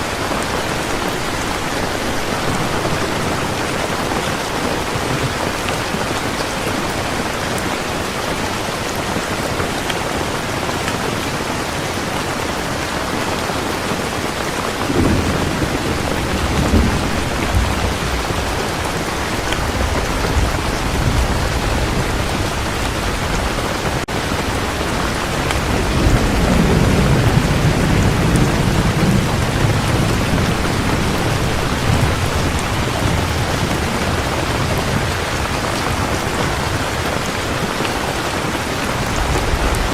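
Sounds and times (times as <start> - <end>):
thunder rumbling: 0.0 - 6.0, 14.0 - 39.9
heavy rain falling: 0.0 - 39.9.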